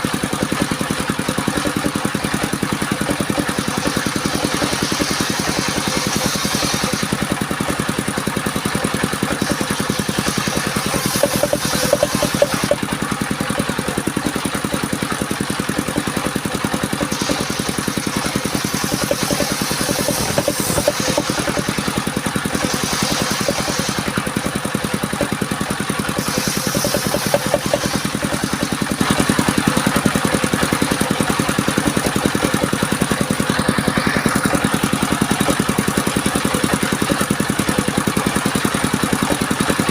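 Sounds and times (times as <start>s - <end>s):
sawmill engine running: 0.0s - 39.9s
circular saw whine: 1.5s - 30.1s.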